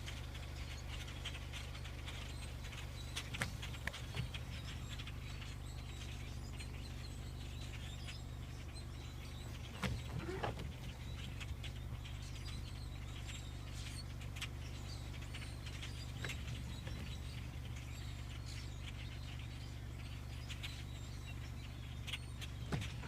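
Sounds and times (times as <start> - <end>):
flock of birds calling: 0.0 - 23.0
steady low hum: 0.0 - 23.0.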